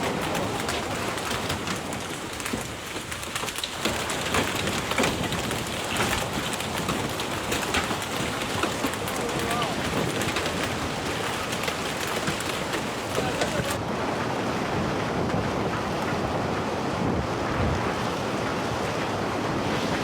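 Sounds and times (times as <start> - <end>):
raindrops striking hard surfaces: 0.0 - 13.8
heavy rain falling: 0.0 - 14.3.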